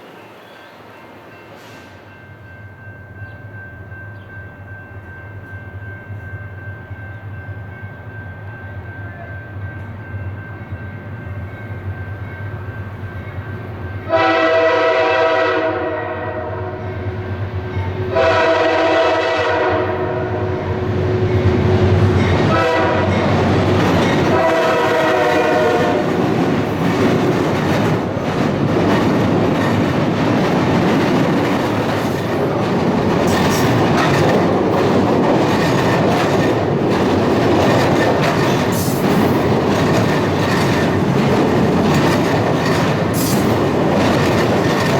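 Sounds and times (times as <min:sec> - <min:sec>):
train engine: 0:00.0 - 0:44.9
train wheels on rails: 0:00.0 - 0:44.9
locomotive horn blasts: 0:14.1 - 0:17.2, 0:18.1 - 0:21.2, 0:22.5 - 0:23.4, 0:24.2 - 0:26.1.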